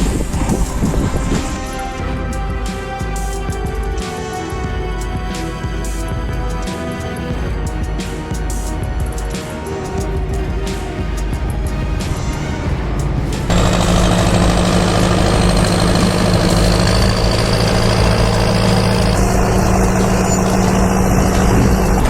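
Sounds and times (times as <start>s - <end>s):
machine drone: 0.0s - 4.6s, 13.4s - 22.0s
background music: 0.0s - 22.0s.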